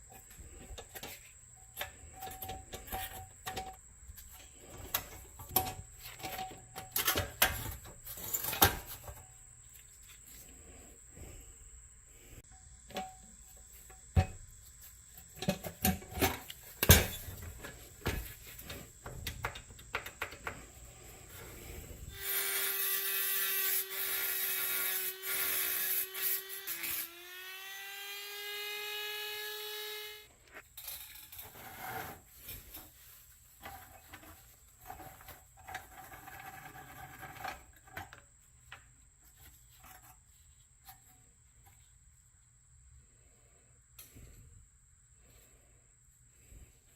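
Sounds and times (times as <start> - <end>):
metal parts clicking and knocking: 4.8 - 9.2
electric power tool whining: 22.1 - 30.3.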